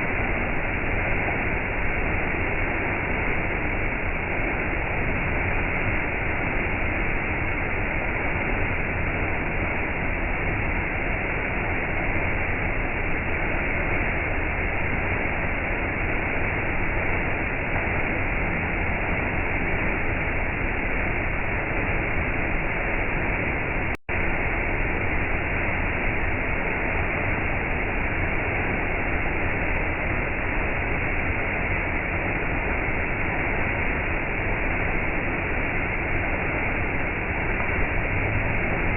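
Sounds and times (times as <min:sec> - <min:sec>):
waterfall rushing: 0:24.9 - 0:38.9.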